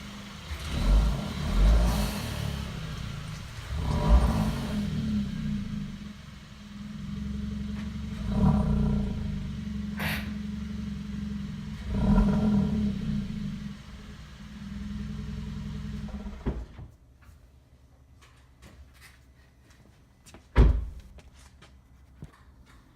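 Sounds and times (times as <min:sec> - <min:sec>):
car engine idling and revving: 0:00.0 - 0:16.8.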